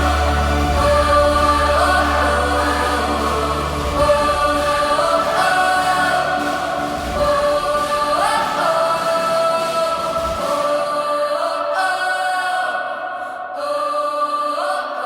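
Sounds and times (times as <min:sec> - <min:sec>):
choir singing held notes: 0:00.0 - 0:15.0.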